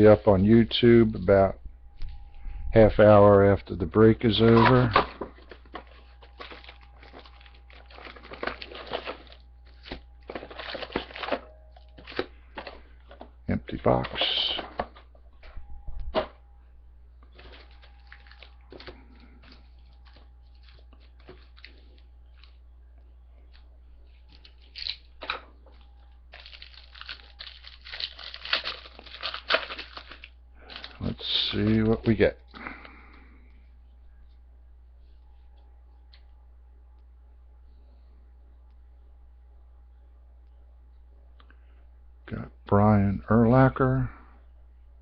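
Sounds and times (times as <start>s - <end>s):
plastic wrapping crinkling: 4.3s - 13.3s, 17.2s - 22.7s, 23.5s - 32.6s.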